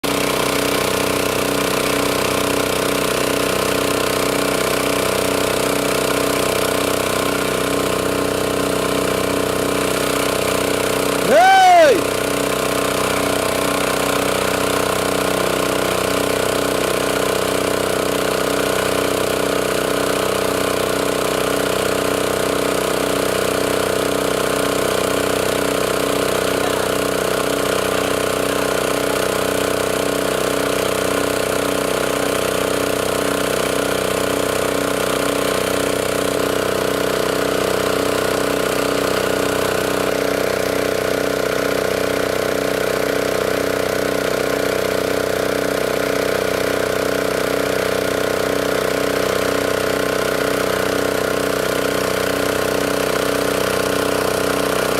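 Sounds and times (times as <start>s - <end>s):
boat engine running: 0.0s - 54.9s.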